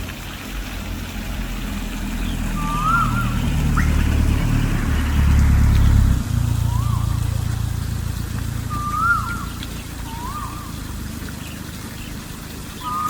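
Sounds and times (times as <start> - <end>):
bird whistling calls: 2.2 - 4.0, 6.5 - 7.6, 8.6 - 12.1, 12.7 - 13.0.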